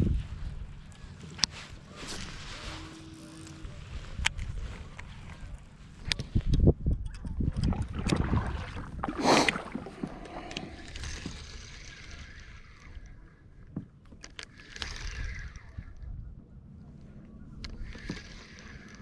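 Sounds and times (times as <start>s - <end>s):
wind buffeting microphone: 0.0s - 1.2s, 3.7s - 13.2s
water moving around hull: 0.1s - 6.2s, 7.4s - 19.0s.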